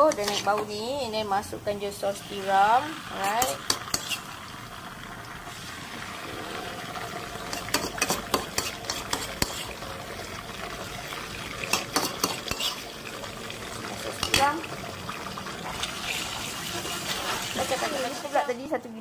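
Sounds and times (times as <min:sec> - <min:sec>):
spoon clinking and scraping wok: 0:00.0 - 0:00.9, 0:03.1 - 0:04.4, 0:07.4 - 0:09.8, 0:11.6 - 0:13.0, 0:14.1 - 0:14.6
food sizzling in hot oil: 0:00.0 - 0:19.0.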